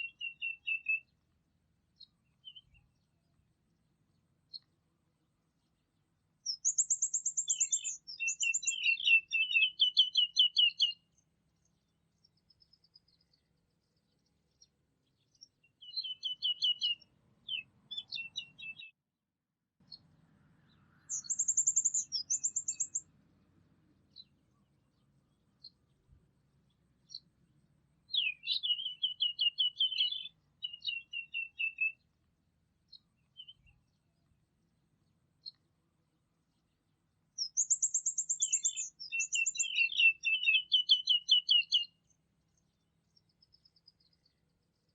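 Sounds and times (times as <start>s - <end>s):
songbird singing falling notes: 0.0s - 1.1s, 6.5s - 11.0s, 14.6s - 19.0s, 21.0s - 23.0s, 28.1s - 32.0s, 37.4s - 42.0s
songbird singing: 0.0s - 19.0s, 19.8s - 44.9s.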